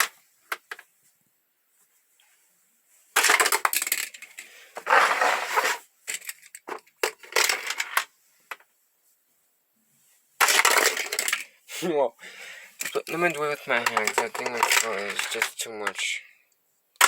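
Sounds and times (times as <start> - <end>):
toy cars rattling on plastic track: 3.2 - 8.1, 10.4 - 11.5, 12.8 - 16.2.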